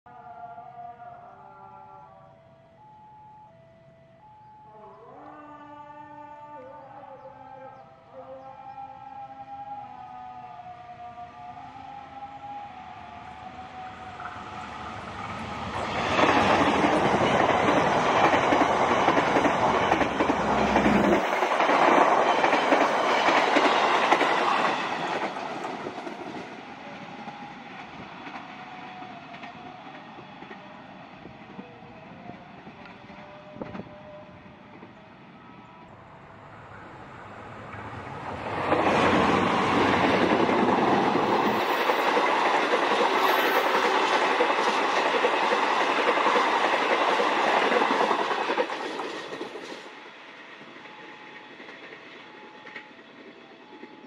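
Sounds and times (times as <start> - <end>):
train coaches rattling past: 11.3 - 54.0
train wheels clickety-clack on rails: 14.1 - 35.0, 37.6 - 54.0.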